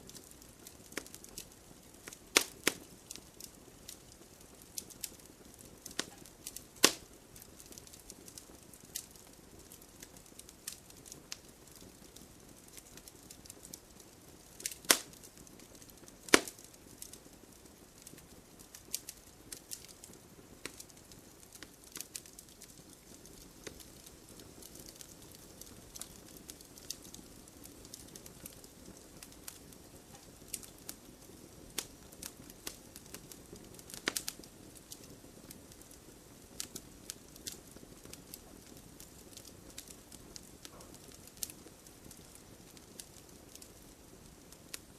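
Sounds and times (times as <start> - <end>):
campfire crackling: 0.0 - 44.9
sharp loud fire pops: 16.3 - 16.6.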